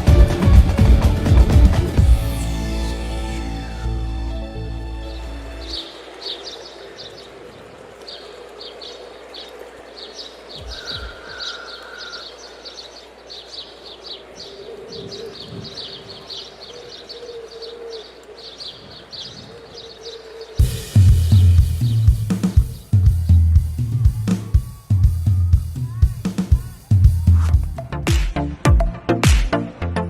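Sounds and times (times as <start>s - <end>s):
drum beat: 0.0s - 2.8s, 20.6s - 29.6s
birds chirping: 0.0s - 28.0s.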